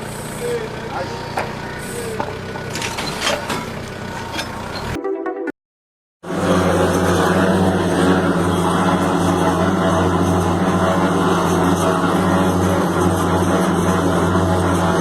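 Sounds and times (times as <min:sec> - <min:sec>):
diesel engine droning: 0:00.0 - 0:05.0, 0:06.2 - 0:15.0.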